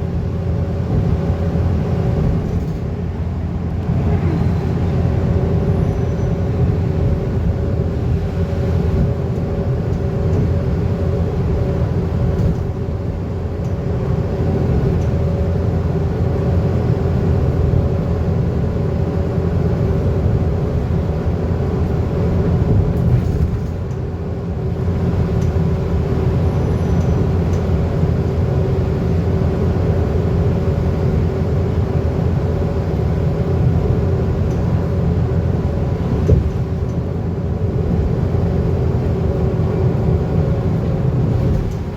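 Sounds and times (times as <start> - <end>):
bus diesel engine running: 0.0 - 41.9
road rumble: 0.0 - 41.9.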